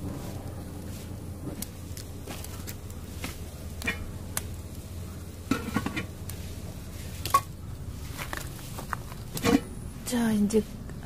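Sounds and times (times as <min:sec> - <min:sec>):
steady low background noise: 0:00.0 - 0:11.0
metal pot and utensils clinking: 0:03.8 - 0:04.1, 0:05.4 - 0:06.1, 0:09.3 - 0:09.7.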